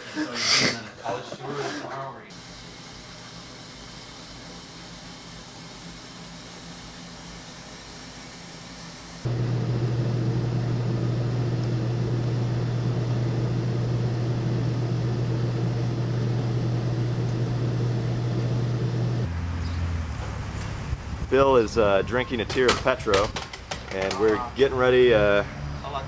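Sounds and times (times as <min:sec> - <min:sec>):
engine drone with low hum: 0:09.2 - 0:21.3.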